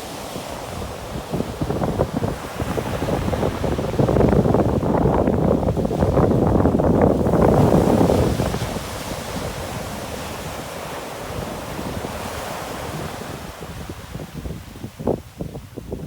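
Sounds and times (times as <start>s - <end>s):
waves washing on shore: 0.0s - 16.0s
wind rumbling on microphone: 0.0s - 16.0s.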